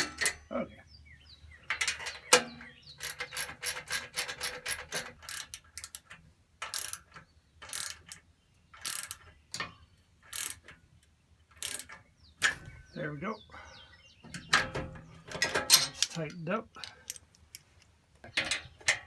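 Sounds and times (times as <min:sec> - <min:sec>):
ratchet wrench clicking: 0:03.0 - 0:08.2, 0:08.8 - 0:09.2, 0:10.3 - 0:10.7, 0:11.6 - 0:11.9.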